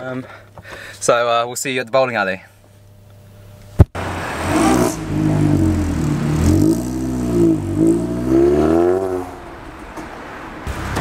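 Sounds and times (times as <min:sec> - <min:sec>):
car engine revving and accelerating: 0:04.0 - 0:09.6.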